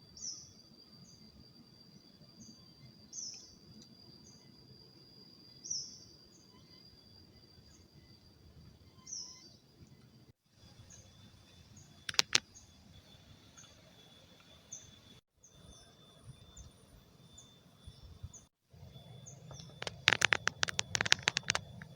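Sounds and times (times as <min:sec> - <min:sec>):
high insect drone: 0:00.0 - 0:21.9
sharp clicks: 0:12.1 - 0:12.4, 0:19.5 - 0:21.9.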